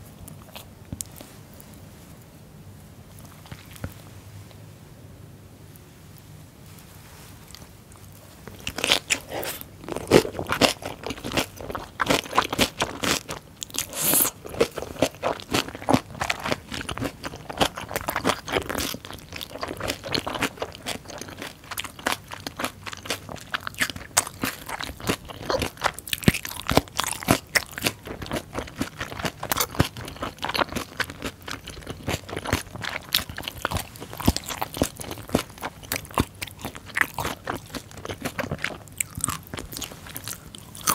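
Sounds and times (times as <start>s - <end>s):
crisp crunching chewing: 7.5s - 40.9s.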